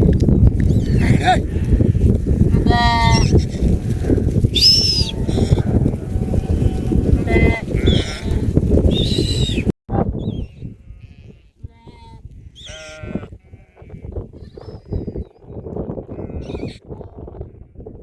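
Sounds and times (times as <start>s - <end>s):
livestock bleating: 2.5s - 8.5s, 10.8s - 14.2s, 16.1s - 16.8s.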